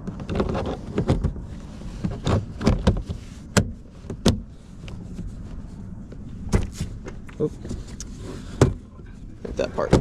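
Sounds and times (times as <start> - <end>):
knocks and rattles of hard parts: 9.5 - 10.0.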